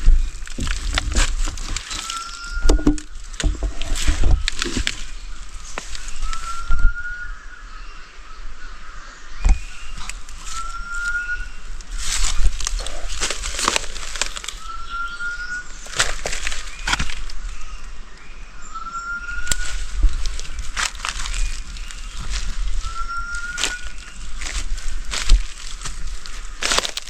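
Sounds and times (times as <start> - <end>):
handling clicks and knocks: 0.5 - 3.7
bird whistled call: 1.9 - 3.1, 6.0 - 7.8, 9.4 - 11.7, 14.5 - 15.9, 18.3 - 19.8, 21.5 - 24.4.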